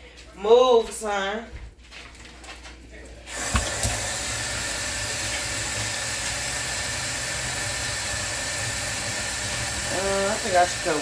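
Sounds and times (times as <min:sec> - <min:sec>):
faucet running into sink: 0:03.3 - 0:11.0.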